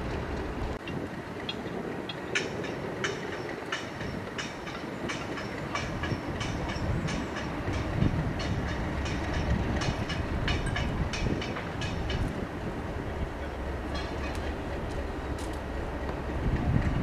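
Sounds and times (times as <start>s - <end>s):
train wheels clicking over rail joints: 0.0s - 17.0s.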